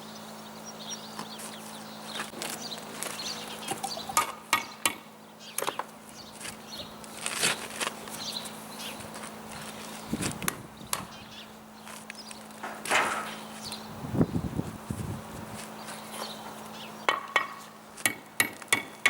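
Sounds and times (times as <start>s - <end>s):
trowel knocking concrete blocks: 17.1s - 19.0s.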